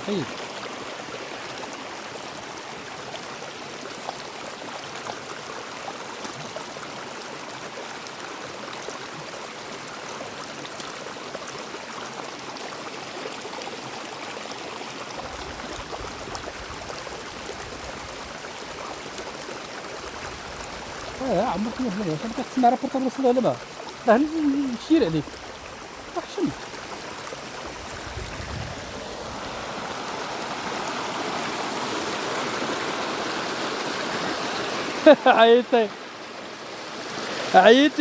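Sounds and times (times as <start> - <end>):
stream water rushing: 0.0 - 38.0.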